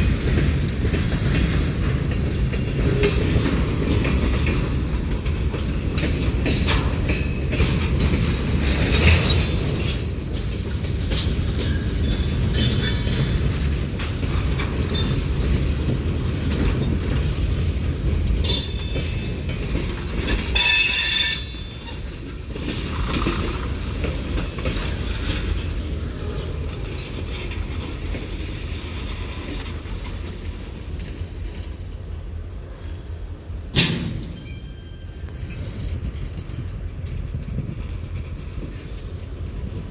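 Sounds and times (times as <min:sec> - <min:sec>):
rumble of train wheels on rail: 0:00.0 - 0:39.9
metallic wheel squeals: 0:20.4 - 0:22.1, 0:34.2 - 0:35.7.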